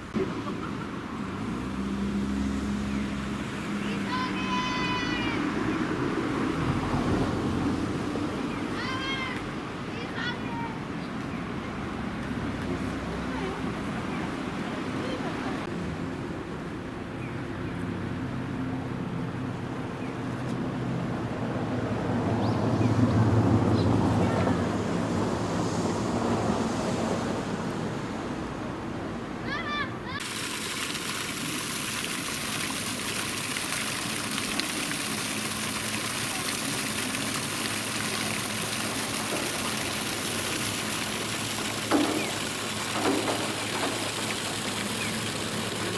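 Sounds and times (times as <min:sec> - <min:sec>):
rushing water: 0:00.0 - 0:17.1, 0:20.7 - 0:45.9
vehicle engine humming: 0:33.7 - 0:45.9.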